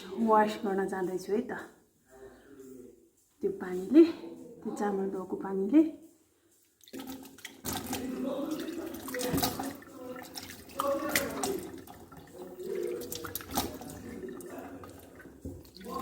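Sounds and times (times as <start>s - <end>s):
water splashing over a sink: 6.8s - 16.0s.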